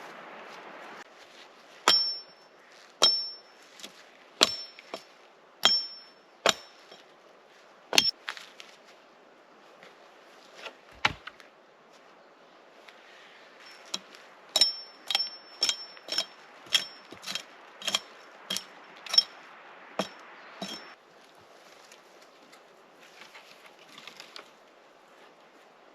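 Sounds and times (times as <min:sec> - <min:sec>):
axe hammering with metallic ring: 0:01.9 - 0:02.4, 0:03.0 - 0:03.5, 0:04.4 - 0:06.9, 0:14.6 - 0:19.4, 0:20.0 - 0:21.0.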